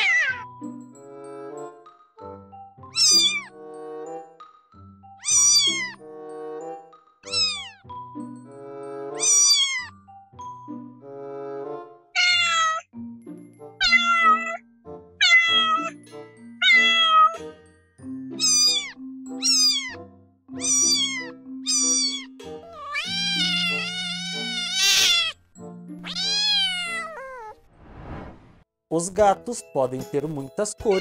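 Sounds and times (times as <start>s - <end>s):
kittens meowing: 0.0s - 0.5s, 2.9s - 3.5s, 5.2s - 6.0s, 7.2s - 7.9s, 9.2s - 10.0s, 12.2s - 12.9s, 13.8s - 14.6s, 15.2s - 16.0s, 16.6s - 17.4s, 18.4s - 25.4s, 26.0s - 27.6s
soft background music: 0.0s - 27.4s, 28.9s - 31.0s.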